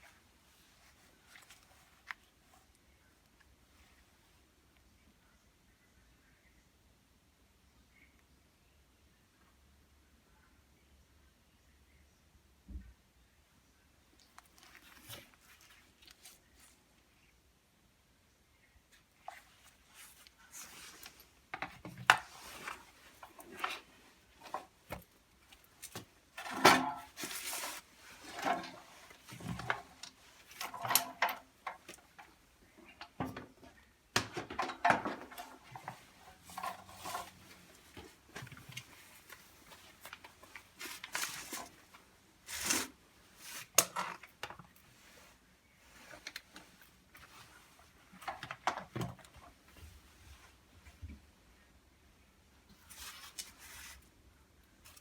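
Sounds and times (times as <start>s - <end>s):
clicks and knocks of drill parts: 28.3s - 32.3s, 34.2s - 36.0s.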